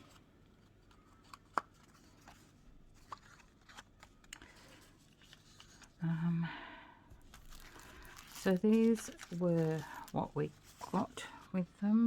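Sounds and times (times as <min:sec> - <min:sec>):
paper and craft tools handled: 0:07.2 - 0:12.0.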